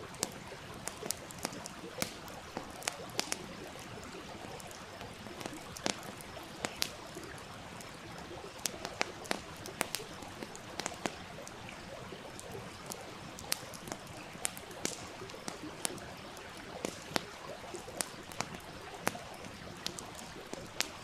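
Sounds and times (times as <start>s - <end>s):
campfire crackling and popping: 0.0s - 21.0s
stream flowing: 0.0s - 21.0s.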